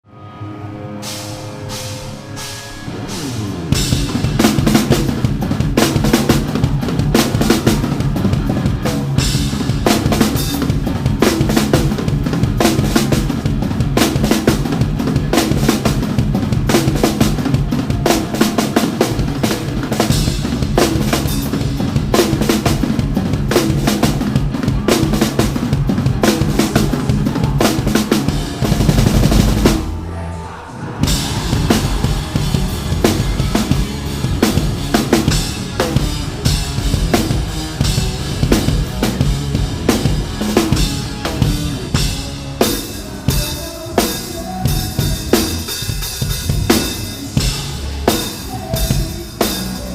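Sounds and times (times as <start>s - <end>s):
live rock band playing: 0.1s - 30.2s, 30.9s - 49.9s
bass drum hits: 31.0s - 41.9s.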